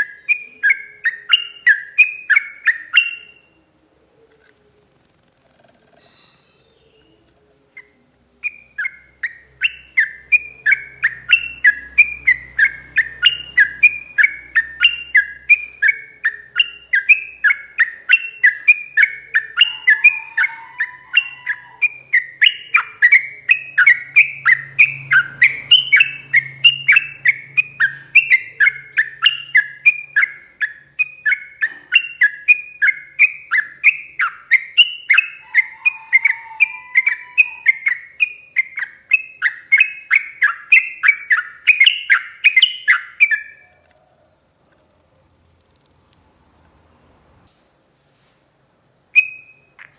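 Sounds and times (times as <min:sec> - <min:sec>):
bird chattering song: 0:00.0 - 0:03.5, 0:05.1 - 0:07.2, 0:07.8 - 0:46.4.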